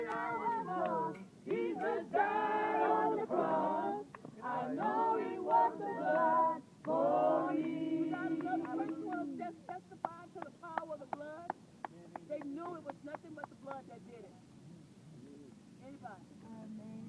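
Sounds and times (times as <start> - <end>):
women singing unaccompanied: 0.0 - 11.1.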